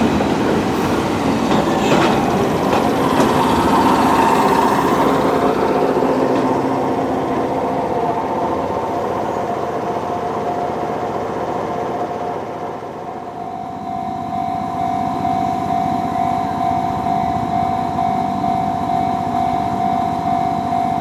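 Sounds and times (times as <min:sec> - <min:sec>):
electric train rumbling: 0:00.0 - 0:21.0.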